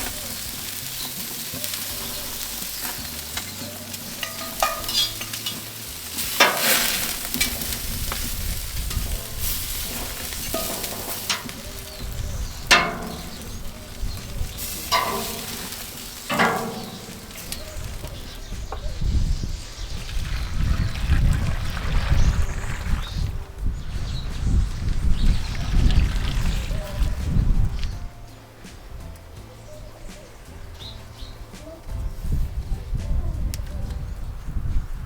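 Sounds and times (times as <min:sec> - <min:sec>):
utensil scraping a pot: 0:00.0 - 0:23.3
food sizzling in hot fat: 0:00.0 - 0:28.0.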